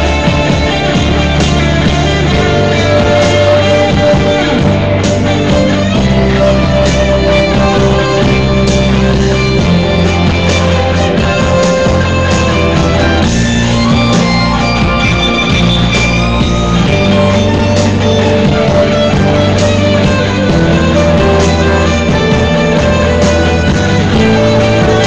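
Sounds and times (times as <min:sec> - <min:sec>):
bass line: 0:00.0 - 0:25.0
loud sustained guitar chords: 0:00.0 - 0:25.0.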